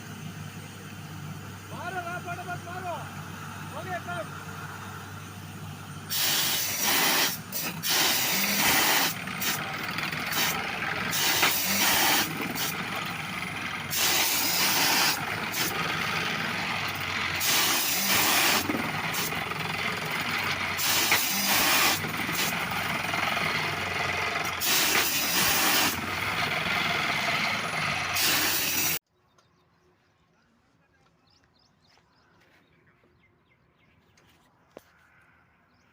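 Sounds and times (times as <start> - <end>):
engine running: 0.0 - 29.7
loud bursts of hissing: 6.0 - 20.0, 20.7 - 23.2, 24.3 - 29.0.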